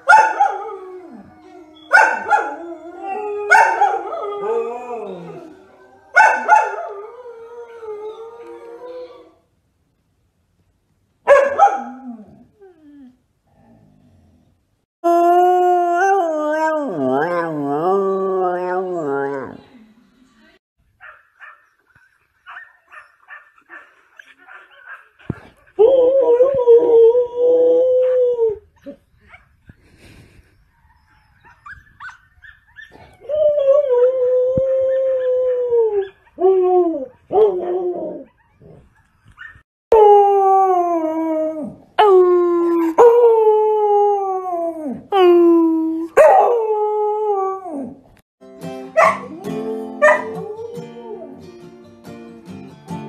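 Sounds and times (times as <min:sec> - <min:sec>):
acoustic guitar strumming: 0:48.4 - 0:53.0.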